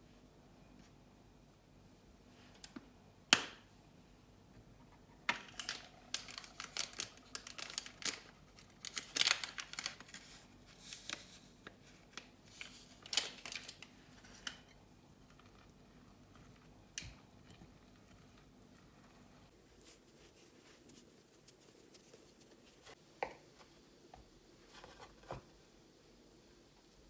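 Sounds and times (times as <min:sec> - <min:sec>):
rustling of handled things: 0:04.9 - 0:23.0.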